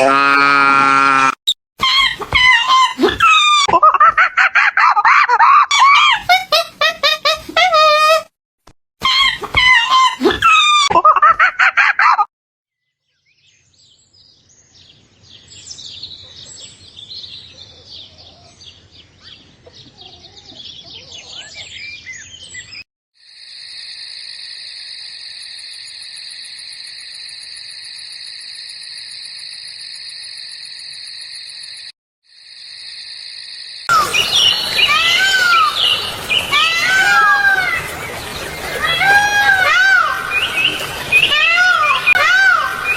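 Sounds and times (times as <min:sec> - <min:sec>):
loud high-pitched cries: 0:01.8 - 0:03.7, 0:04.4 - 0:08.2, 0:09.0 - 0:10.9, 0:33.9 - 0:38.0, 0:38.6 - 0:42.9
small birds chirping: 0:12.9 - 0:22.8, 0:33.9 - 0:39.0.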